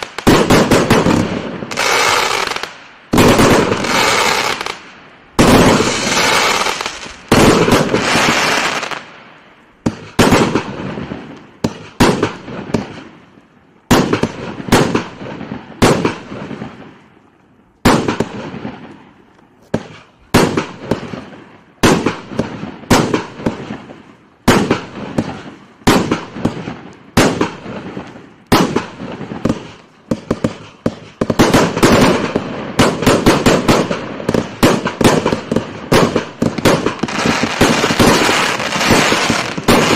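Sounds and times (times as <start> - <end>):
firework shots and aerial bursts: 0.0 - 39.9.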